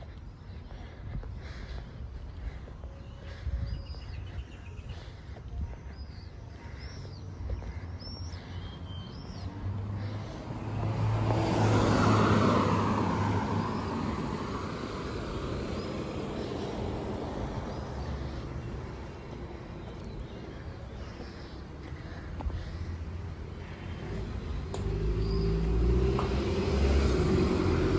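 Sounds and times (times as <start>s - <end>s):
steady traffic hum: 0.0s - 27.9s
car passing close by: 8.8s - 27.9s.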